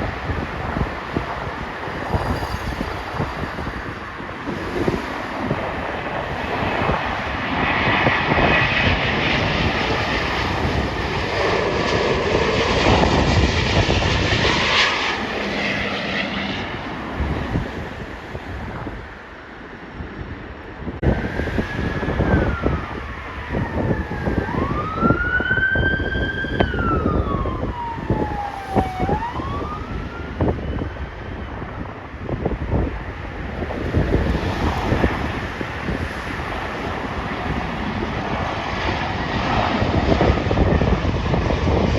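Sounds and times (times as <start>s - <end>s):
jet airliner engine noise: 0.0s - 41.9s
wind buffeting microphone: 0.0s - 41.9s
emergency siren wailing: 4.6s - 16.7s, 21.0s - 32.9s.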